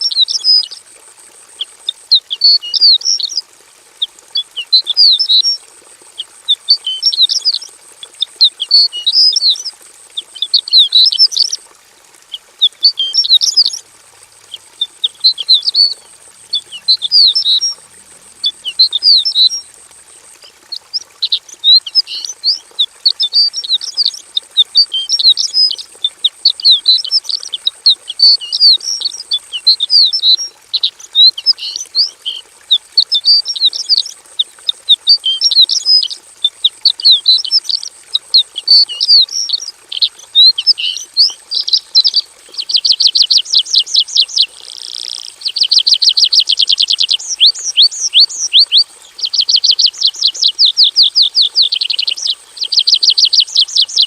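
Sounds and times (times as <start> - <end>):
bird singing with chirps and trills: 6.7 - 7.7, 8.5 - 9.6, 12.9 - 13.8, 14.8 - 17.8, 18.4 - 19.6, 20.7 - 25.8, 26.5 - 32.4, 35.0 - 36.1, 36.9 - 54.0.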